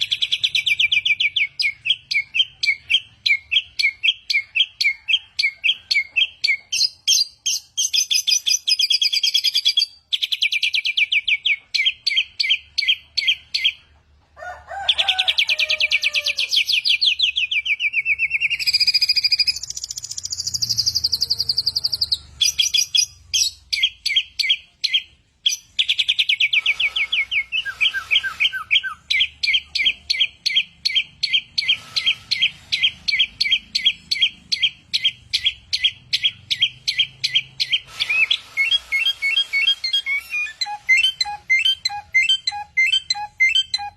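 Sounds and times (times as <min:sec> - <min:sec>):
songbird singing rapid chirps: 0:16.2 - 0:43.9.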